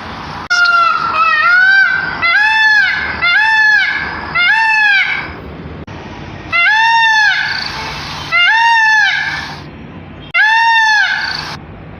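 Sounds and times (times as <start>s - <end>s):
peacock calling: 0.4s - 5.4s, 6.5s - 11.6s.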